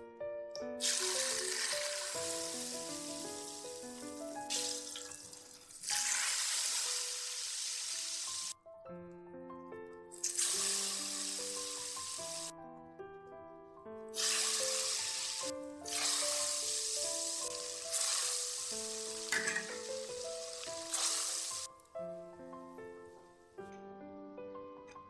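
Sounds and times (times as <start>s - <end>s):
background music melody: 0.0s - 25.0s
hot oil sizzling: 0.8s - 8.6s, 10.2s - 12.5s, 14.2s - 21.7s.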